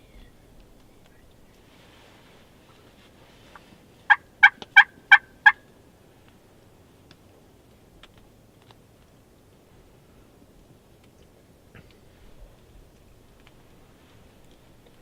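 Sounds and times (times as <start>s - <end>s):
turkey calling: 4.1s - 5.6s.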